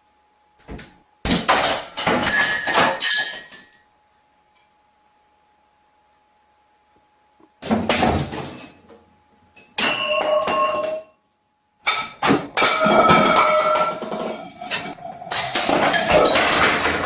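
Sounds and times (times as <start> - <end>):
crashing clattering with ringing: 11.8 - 17.0.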